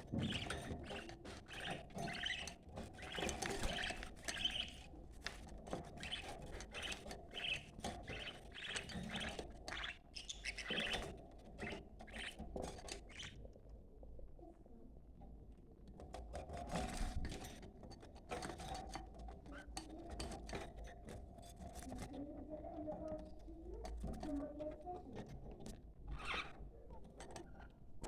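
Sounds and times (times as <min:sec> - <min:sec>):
budgerigars chattering: 0:00.2 - 0:04.9, 0:06.0 - 0:12.4, 0:13.0 - 0:13.4.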